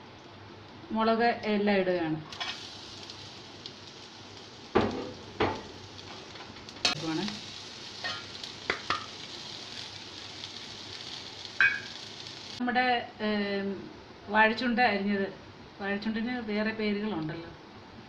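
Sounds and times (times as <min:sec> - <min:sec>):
food sizzling in hot oil: 0:02.3 - 0:12.6.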